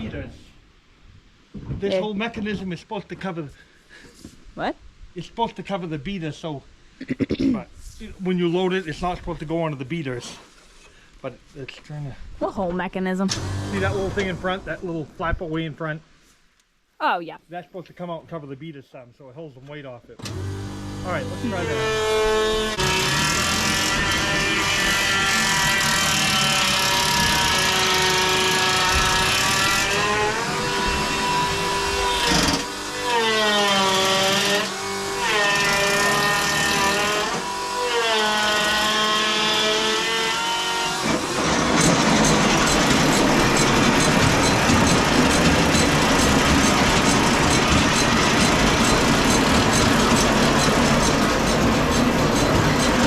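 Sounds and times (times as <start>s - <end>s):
farm machinery engine running: 20.2s - 32.8s, 41.0s - 53.0s
fast mechanical clatter: 41.0s - 53.0s.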